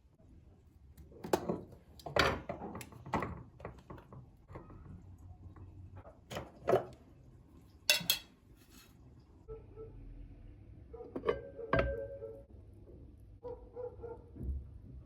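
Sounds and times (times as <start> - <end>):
dishes clattering: 7.9 - 8.3.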